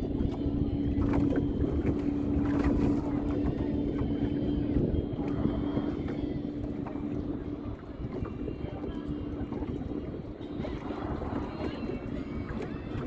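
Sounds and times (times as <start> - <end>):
steady engine drone: 0.0 - 13.0
wind rumbling on microphone: 0.0 - 13.0.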